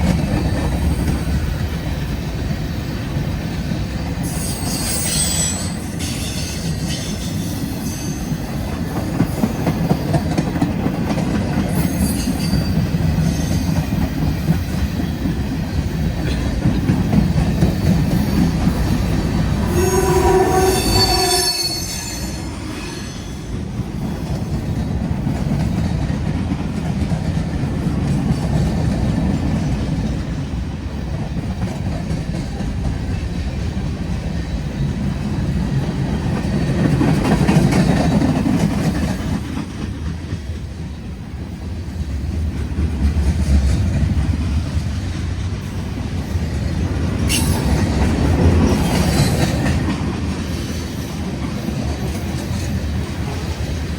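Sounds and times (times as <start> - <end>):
train horn blast: 19.6 - 22.6.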